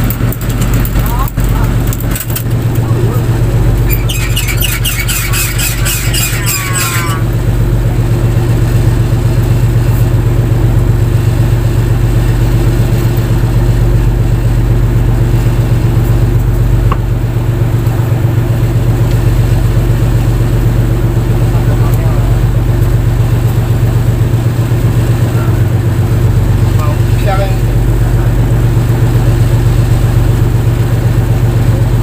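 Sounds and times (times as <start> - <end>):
boat engine droning: 0.0 - 32.0
high squealing chatter: 2.9 - 7.3.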